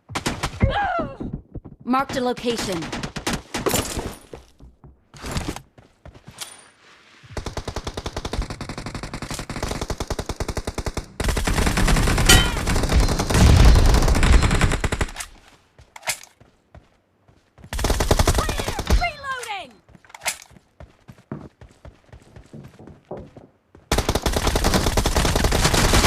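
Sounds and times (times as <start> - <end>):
video game gunfire: 11.2 - 15.2.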